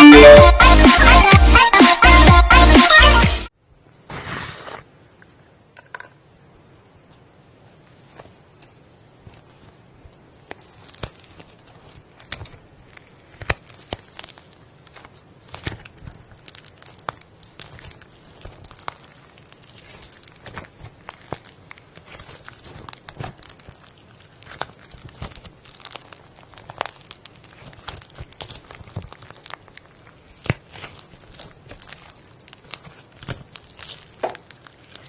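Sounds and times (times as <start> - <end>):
slime squeezed crackling: 7.9 - 35.0.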